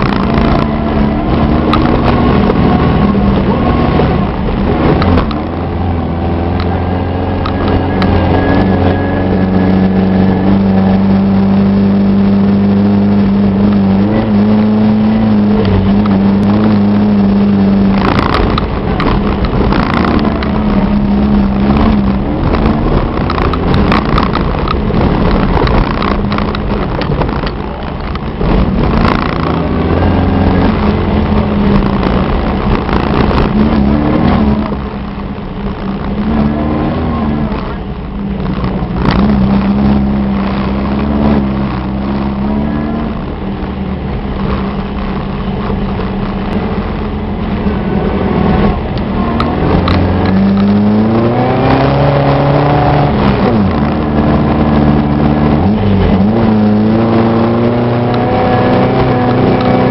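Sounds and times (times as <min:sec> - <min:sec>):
car engine revving under load: 0:00.0 - 0:59.9
knocks and rattles: 0:14.4 - 0:36.7, 0:37.3 - 0:42.6.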